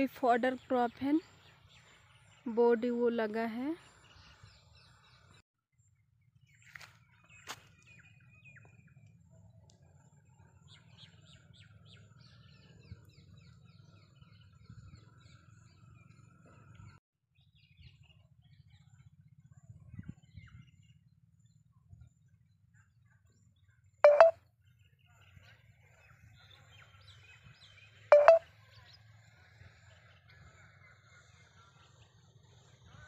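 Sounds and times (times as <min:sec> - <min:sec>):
birds chirping: 0:24.0 - 0:24.3, 0:28.1 - 0:28.4.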